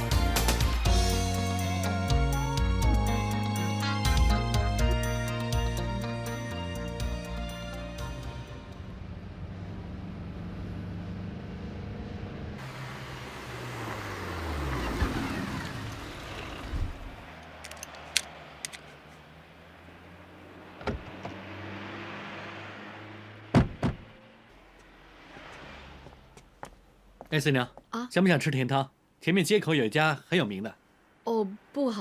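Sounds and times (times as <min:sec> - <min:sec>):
car passing by: 0:08.6 - 0:27.2.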